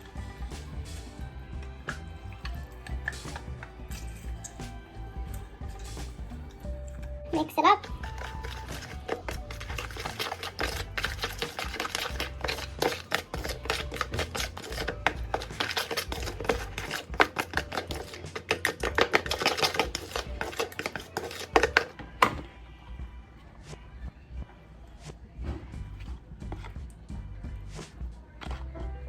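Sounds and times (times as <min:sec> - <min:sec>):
utensil scraping a bowl: 0:00.0 - 0:22.4.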